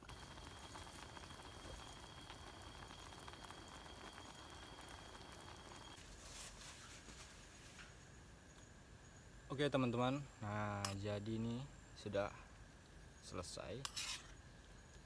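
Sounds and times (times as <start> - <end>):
food boiling and sizzling in pot: 0.0 - 8.3, 13.4 - 15.0
thin steady whine: 0.0 - 15.0.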